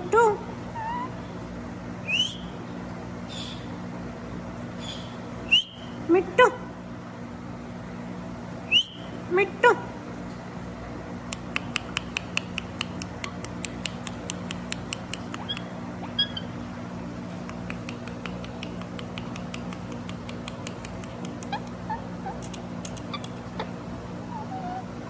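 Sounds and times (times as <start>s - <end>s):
parrot calls: 0.7s - 1.2s, 15.3s - 16.6s, 21.4s - 25.0s
parrot chirps: 0.8s - 1.2s, 15.3s - 16.6s, 21.3s - 24.9s
parrot clicking: 11.3s - 15.7s, 17.4s - 23.7s.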